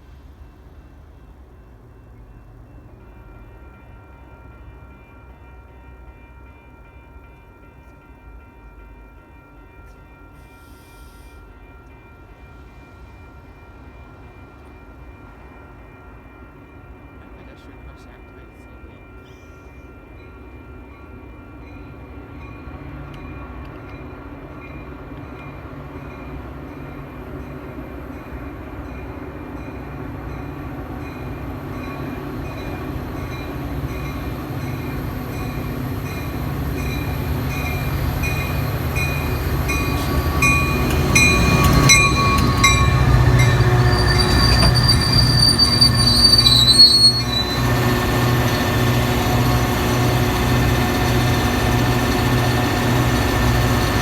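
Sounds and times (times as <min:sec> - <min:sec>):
train bell ringing: 0:00.0 - 0:54.0
diesel locomotive engine humming: 0:22.0 - 0:54.0
high wheel squeal: 0:39.1 - 0:48.7.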